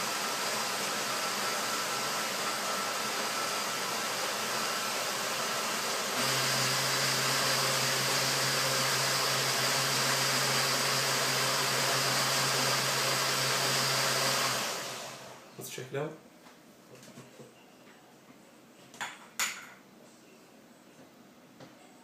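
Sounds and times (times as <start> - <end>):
blender motor running: 0.0 - 15.5.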